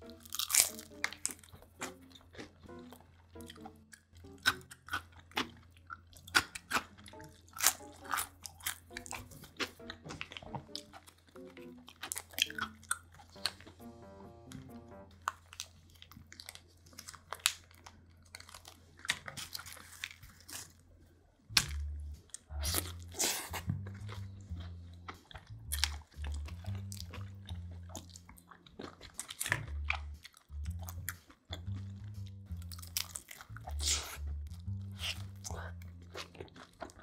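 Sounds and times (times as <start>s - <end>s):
chewing crunchy pizza: 0.0s - 14.0s, 14.6s - 37.0s
background music with bass: 12.5s - 15.3s, 21.5s - 28.5s, 29.1s - 36.2s.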